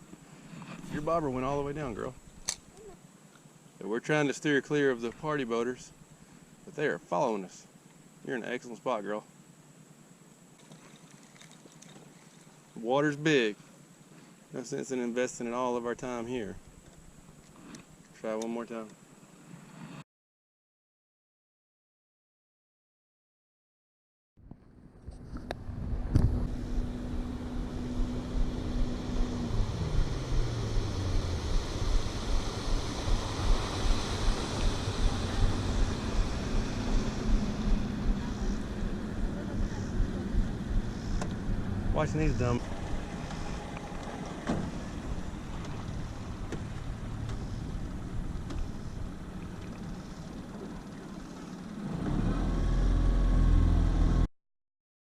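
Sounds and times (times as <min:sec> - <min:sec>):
wind and water noise: 0:00.0 - 0:02.8, 0:10.5 - 0:20.0, 0:25.0 - 0:53.0
motorboat engine droning: 0:00.0 - 0:03.7, 0:24.7 - 0:54.3
second engine tone: 0:25.4 - 0:54.3.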